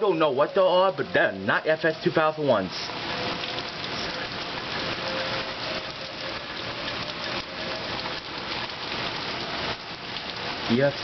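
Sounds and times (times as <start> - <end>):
distant warning siren: 0.0 - 10.8
heavy rain falling: 0.0 - 11.0.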